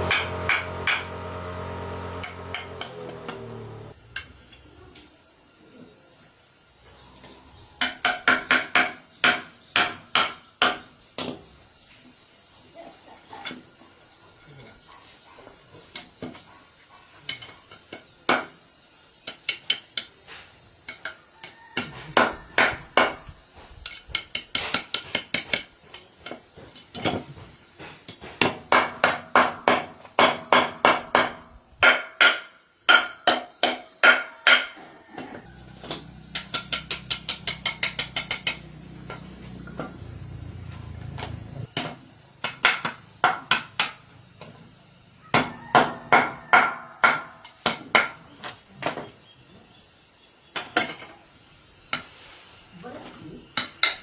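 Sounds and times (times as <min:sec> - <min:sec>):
hammer striking metal: 0:00.0 - 0:01.2, 0:35.8 - 0:39.2.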